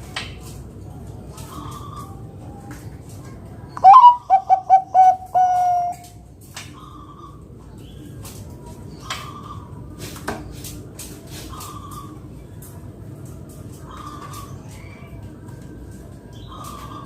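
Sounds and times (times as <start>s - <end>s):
dove cooing call: 3.8s - 6.2s.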